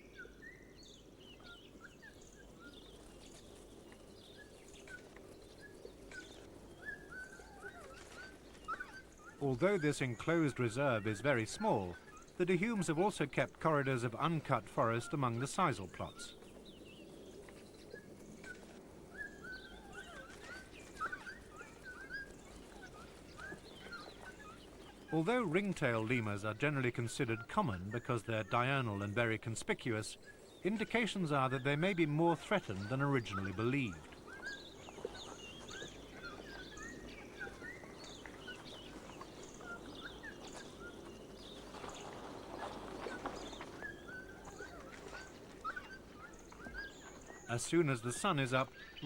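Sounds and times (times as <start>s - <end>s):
birds chirping: 0.0s - 49.0s
faint low hiss: 0.0s - 49.0s.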